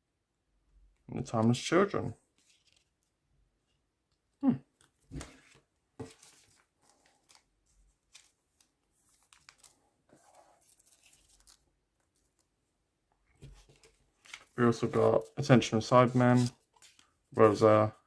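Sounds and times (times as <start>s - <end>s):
wrapper and cards rustling: 4.8s - 12.5s, 13.4s - 18.0s.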